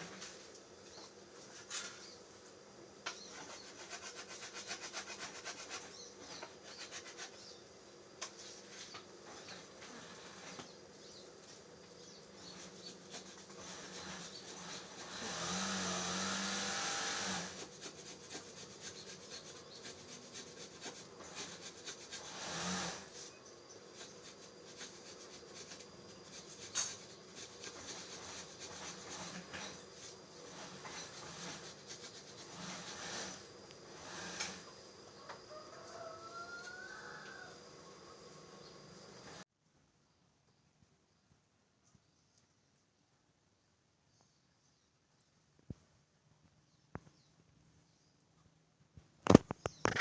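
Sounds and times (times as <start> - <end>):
rasping burst: 13.1 - 19.5, 26.5 - 34.8.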